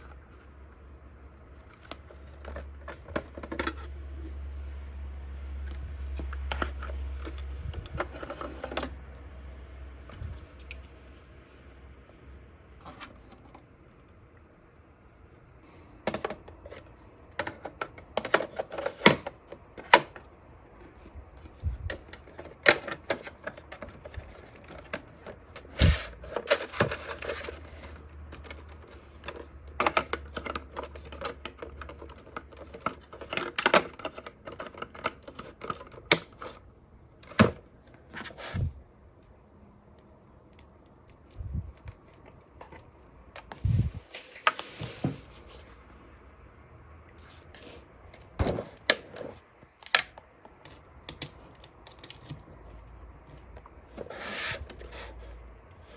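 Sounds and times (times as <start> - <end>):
hands handling plastic device: 1.4 - 4.4, 5.7 - 9.1, 15.7 - 38.8, 47.2 - 55.3.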